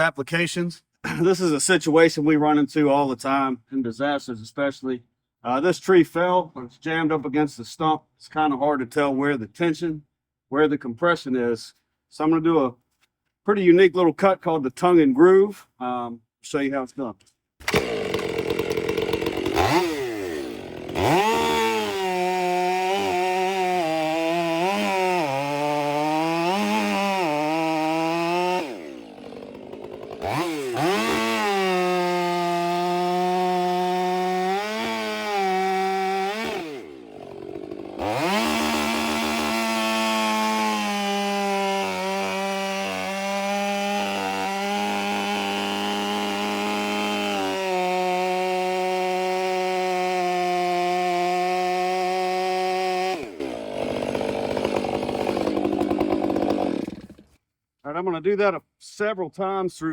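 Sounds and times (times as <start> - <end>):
chainsaw cutting wood: 17.6 - 57.4.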